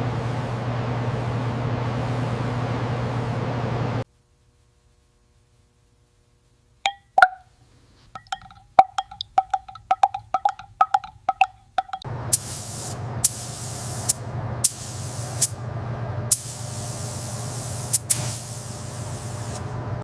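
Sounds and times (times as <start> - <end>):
spray hissing: 12.3 - 15.6, 16.3 - 19.6.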